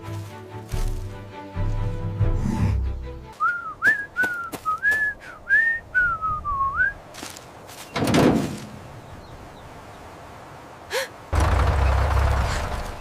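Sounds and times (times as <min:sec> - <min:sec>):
whistled tune: 0:03.4 - 0:07.0.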